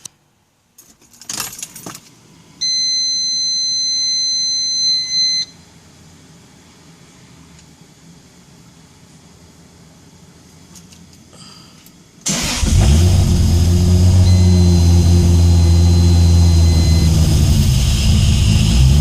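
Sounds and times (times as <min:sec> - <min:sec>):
car warning buzzer beep: 0:02.6 - 0:05.6, 0:13.9 - 0:18.8.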